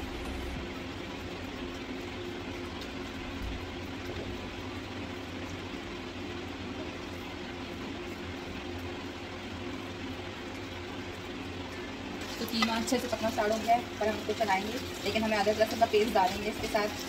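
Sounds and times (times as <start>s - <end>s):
low hum: 0.0s - 1.7s
meat sizzling in a frying pan: 12.0s - 17.0s
spatula stirring: 12.2s - 17.0s.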